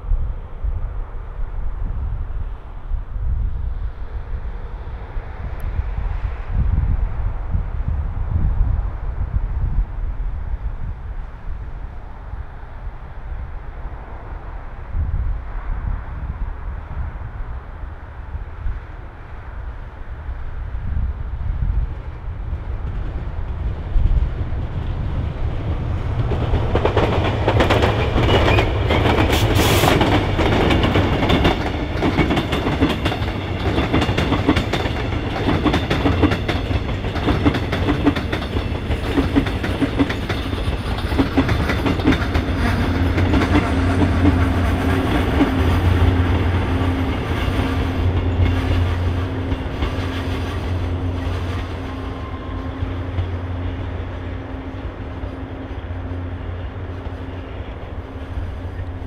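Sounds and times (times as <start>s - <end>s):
train wheels clicking over rail joints: 22.8s - 55.8s.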